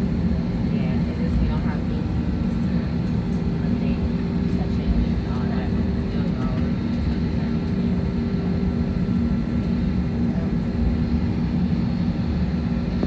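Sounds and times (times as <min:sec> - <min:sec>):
jet engines droning in cabin: 0:00.0 - 0:13.0.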